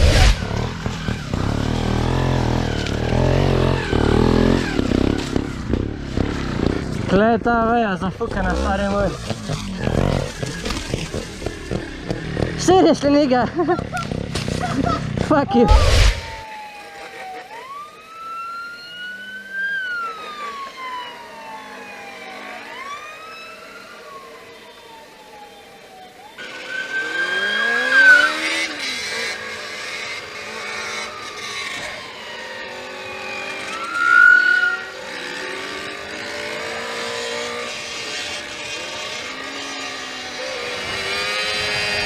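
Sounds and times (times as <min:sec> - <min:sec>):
police siren wailing: 0:00.0 - 0:05.7, 0:15.6 - 0:42.0
motorcycle engines revving: 0:00.0 - 0:42.0.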